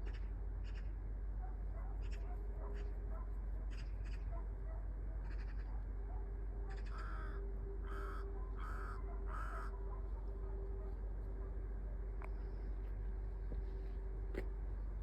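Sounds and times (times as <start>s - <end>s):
steady low hum: 0.0s - 15.0s
crow cawing: 5.2s - 5.8s, 6.7s - 10.0s.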